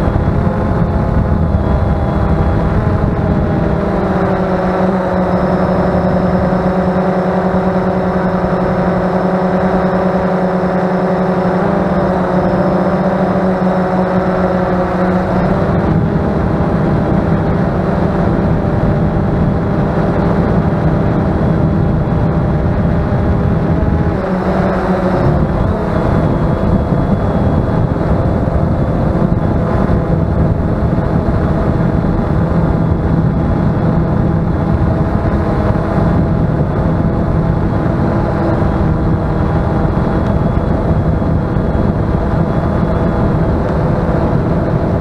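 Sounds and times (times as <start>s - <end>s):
drone propellers whirring: 0.0s - 45.0s
wind buffeting microphone: 0.0s - 45.0s.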